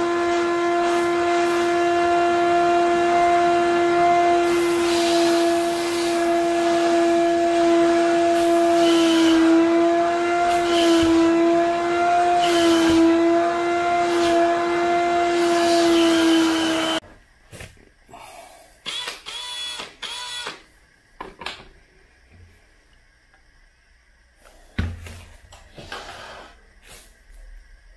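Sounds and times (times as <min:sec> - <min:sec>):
wet vacuum cleaner whining: 0:00.0 - 0:17.0.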